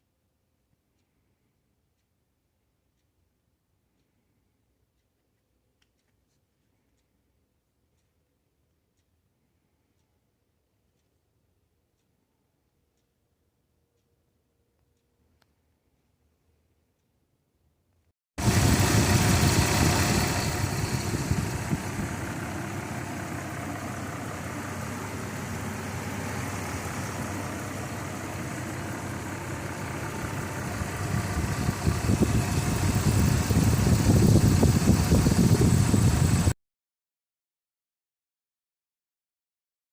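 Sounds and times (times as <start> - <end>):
car engine running: 18.4 - 36.5.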